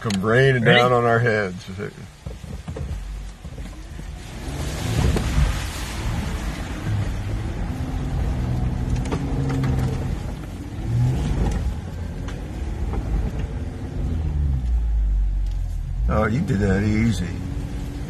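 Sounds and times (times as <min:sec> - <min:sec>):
car engine revving: 0:04.1 - 0:18.0.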